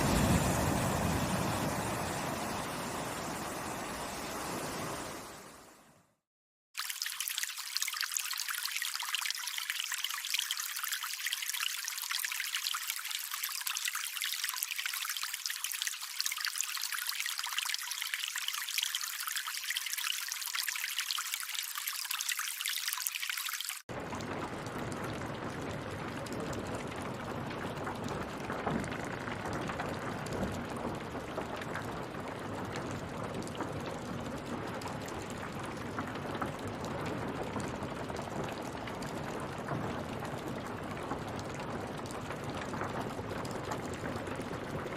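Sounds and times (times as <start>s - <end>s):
running water rushing: 0.0s - 5.7s, 6.8s - 23.9s
water trickling: 6.8s - 44.9s.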